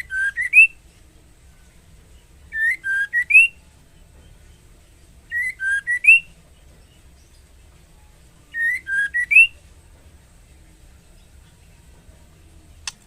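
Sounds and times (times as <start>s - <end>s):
bird whistled calls: 0.0s - 0.8s, 2.5s - 3.6s, 5.3s - 6.4s, 8.5s - 9.6s.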